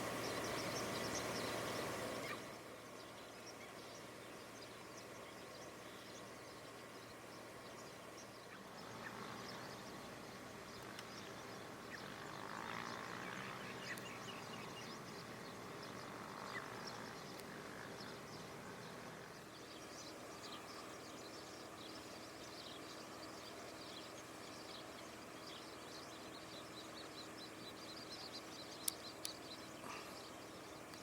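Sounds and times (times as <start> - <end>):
distant birds chirping: 0.0 - 31.0.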